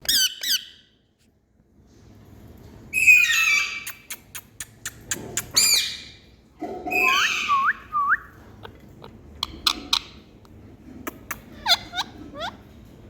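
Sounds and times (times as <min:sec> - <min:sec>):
parrot harsh screech: 0:06.9 - 0:07.6.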